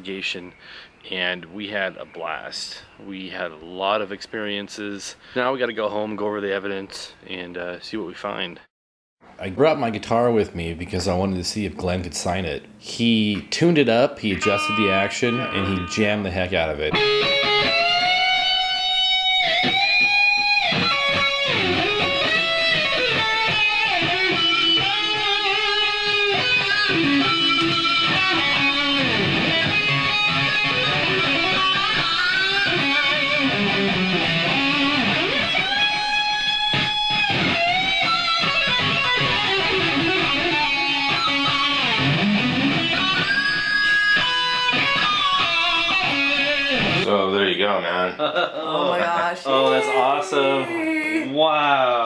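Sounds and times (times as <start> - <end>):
electric guitar with string bends: 14.2 - 49.1.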